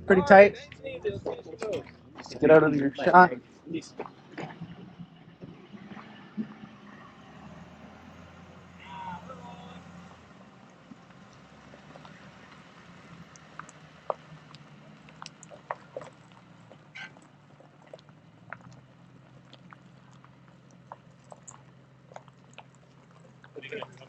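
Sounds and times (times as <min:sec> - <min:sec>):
faint low engine hum: 0:00.0 - 0:24.0
small clicks and ticks: 0:09.4 - 0:24.0.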